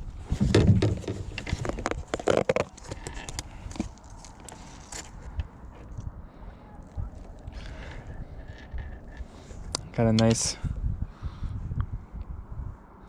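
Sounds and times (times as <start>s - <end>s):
gear knocking against kayak: 0.3s - 3.9s.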